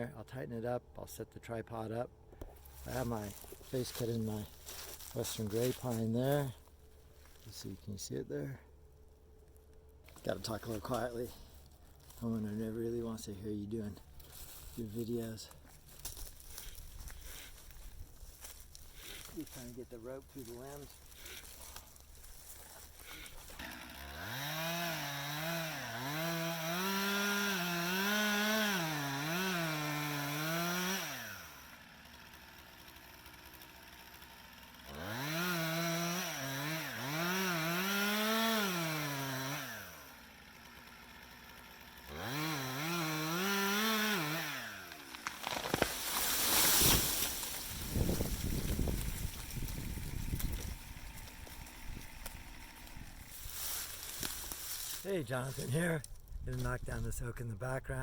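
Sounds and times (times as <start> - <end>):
chainsaw revving and cutting: 2.5 - 6.7, 10.1 - 55.8
loud crackling and crashing: 45.1 - 49.8.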